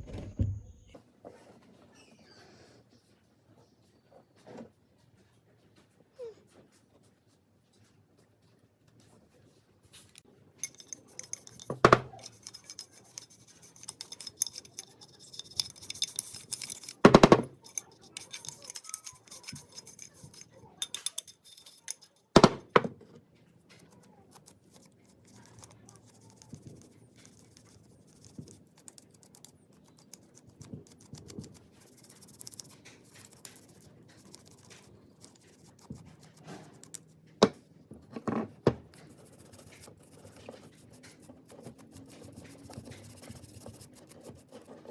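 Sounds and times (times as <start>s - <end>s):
light scraping and rustling: 9.9s - 22.4s, 38.0s - 44.9s
metal parts and tools clinking: 10.6s - 22.6s.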